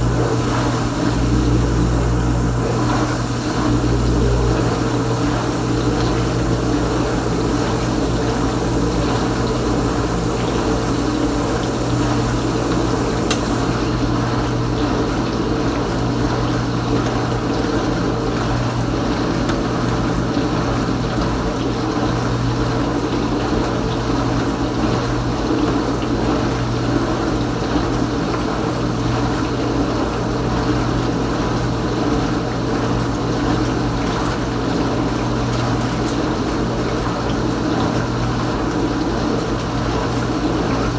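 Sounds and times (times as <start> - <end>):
water spraying inside dishwasher: 0.0 - 14.0
dishwasher pump running: 0.0 - 22.1.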